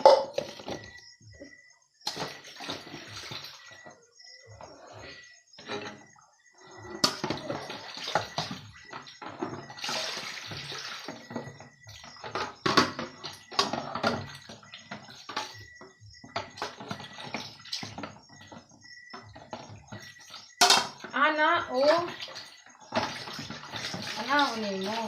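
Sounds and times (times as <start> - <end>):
tap water running and splashing: 2.0 - 3.7, 7.0 - 15.7, 16.3 - 21.0, 21.7 - 25.0
dishes and cutlery clinking: 20.6 - 21.1.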